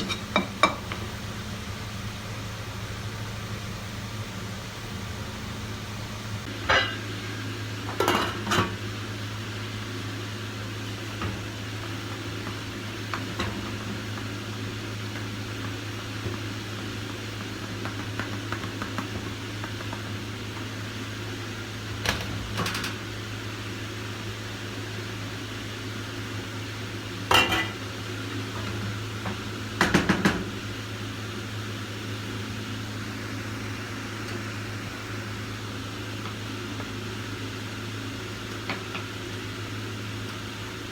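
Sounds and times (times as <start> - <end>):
metal dishes knocking: 0.0 - 0.8
cookware and utensils clinking: 0.0 - 1.0, 6.6 - 7.2, 7.9 - 8.8, 27.3 - 27.8.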